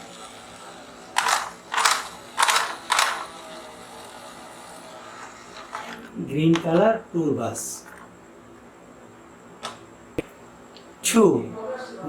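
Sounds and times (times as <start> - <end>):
toy bus mechanical whirring: 0.0 - 8.8.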